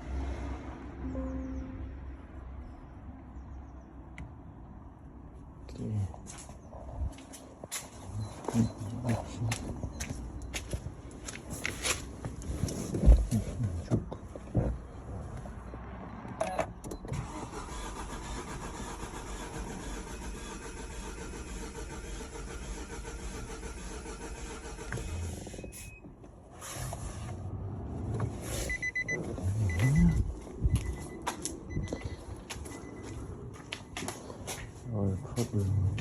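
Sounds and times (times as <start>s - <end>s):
car engine turning over: 17.0s - 25.6s.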